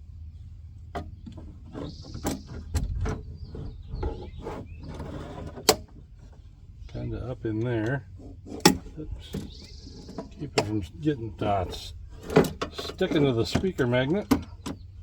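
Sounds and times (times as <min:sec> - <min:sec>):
metal and plastic parts knocking: 0:08.4 - 0:10.8, 0:12.1 - 0:14.9.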